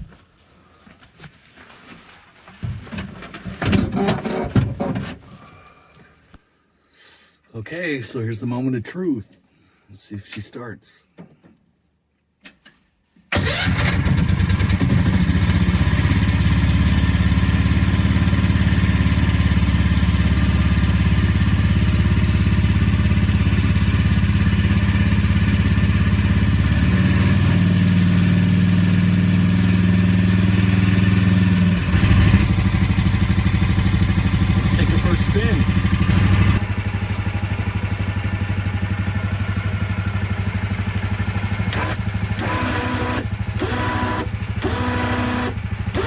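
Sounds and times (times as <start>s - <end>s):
small gasoline engine running: 13.4s - 46.0s.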